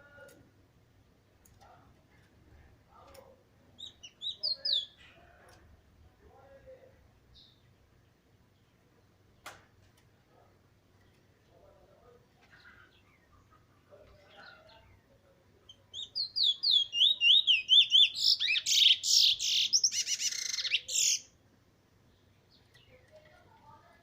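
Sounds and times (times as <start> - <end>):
bird singing whistled notes: 3.8 - 5.0, 15.9 - 21.3.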